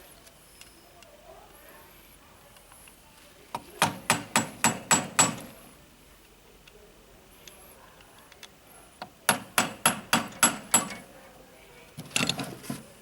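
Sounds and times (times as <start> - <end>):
hammer knocking on metal: 3.8 - 5.5, 9.3 - 11.0.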